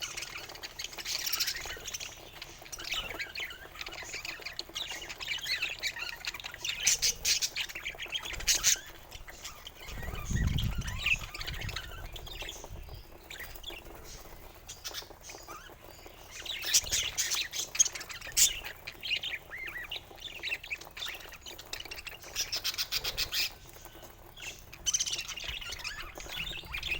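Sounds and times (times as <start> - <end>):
budgerigars chattering and squawking: 0.0 - 26.9.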